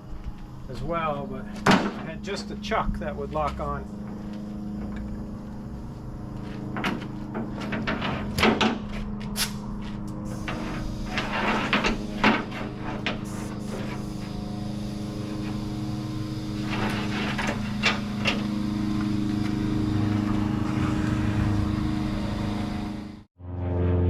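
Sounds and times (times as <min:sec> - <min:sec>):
air compressor droning: 0:00.0 - 0:23.3
air hissing bursts: 0:10.2 - 0:20.6.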